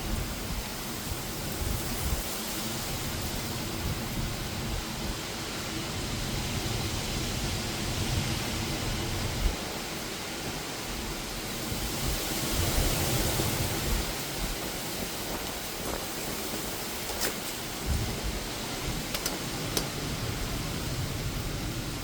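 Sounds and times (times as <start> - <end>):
heavy rain pouring: 0.0 - 22.0
wind rumbling: 0.0 - 22.0.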